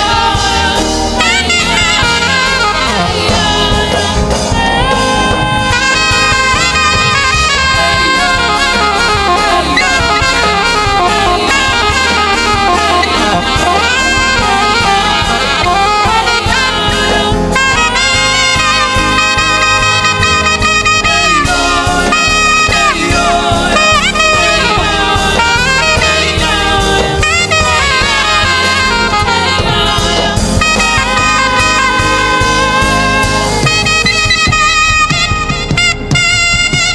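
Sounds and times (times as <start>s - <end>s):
gospel band playing: 0.0s - 36.9s
saxophone melody: 0.0s - 36.9s.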